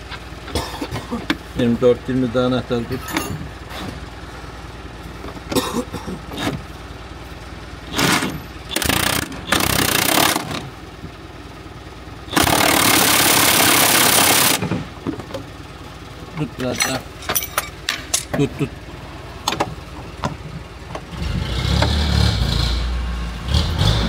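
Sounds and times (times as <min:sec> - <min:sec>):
pneumatic impact wrench: 0:07.9 - 0:10.7, 0:12.3 - 0:14.8.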